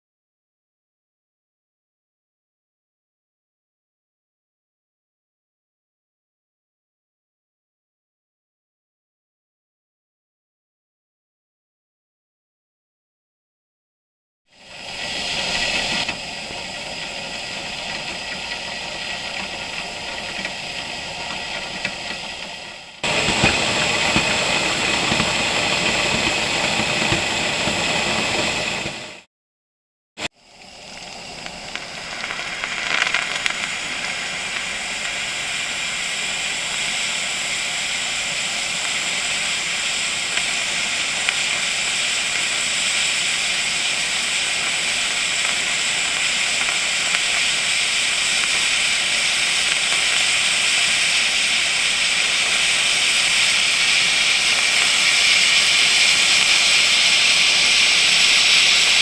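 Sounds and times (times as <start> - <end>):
steam hissing from boiler: 14.5 - 29.3, 30.2 - 59.0.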